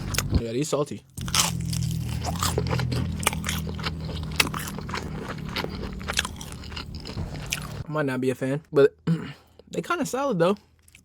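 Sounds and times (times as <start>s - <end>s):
chewing crunchy food: 0.0s - 0.4s, 1.2s - 7.9s, 10.6s - 11.0s
low hum: 1.1s - 7.8s.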